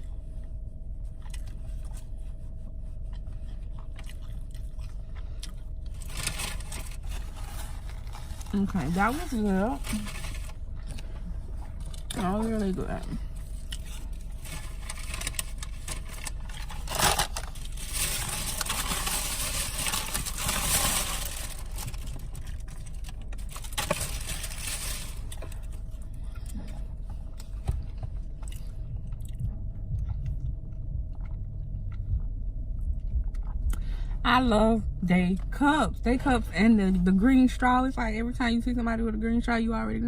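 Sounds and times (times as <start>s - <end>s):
steady low hum: 0.0s - 40.0s
food crunching: 1.1s - 2.1s, 2.7s - 8.7s, 9.8s - 33.9s
packaging rustling: 13.8s - 25.8s.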